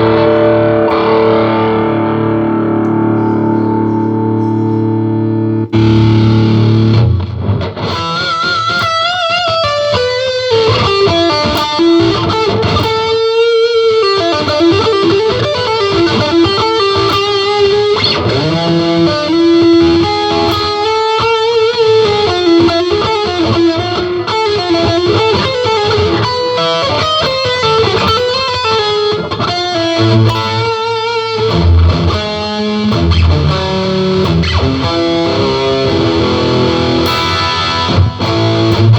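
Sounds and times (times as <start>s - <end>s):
distorted electric guitar lead: 0.0s - 38.9s.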